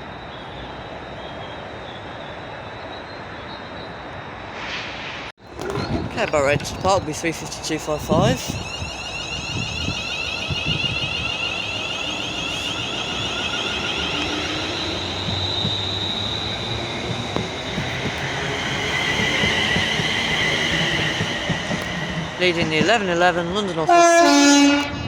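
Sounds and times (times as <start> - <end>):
train traction motor whine: 5.5 - 25.0.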